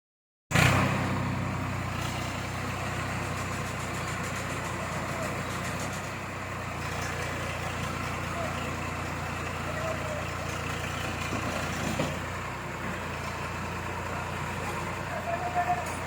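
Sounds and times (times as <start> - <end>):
tractor engine running: 0.5 - 16.0.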